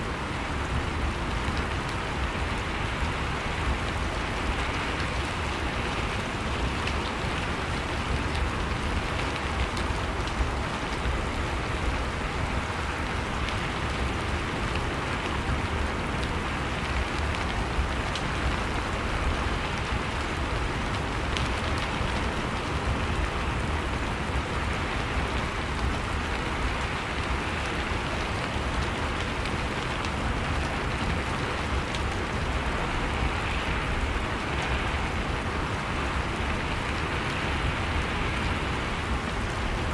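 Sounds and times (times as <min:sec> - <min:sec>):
rain drops ticking on a surface: 0:00.0 - 0:39.9.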